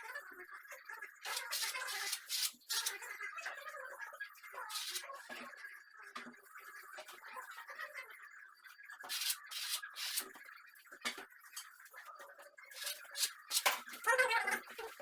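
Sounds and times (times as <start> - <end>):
plastering tool scraping wall: 12.8 - 13.9.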